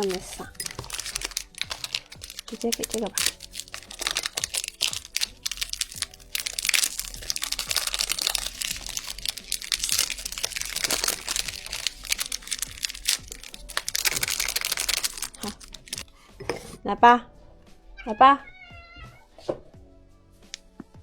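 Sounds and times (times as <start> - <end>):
dense crackle of small clicks: 0.0 - 16.1
plastic packaging crinkling: 0.0 - 16.2.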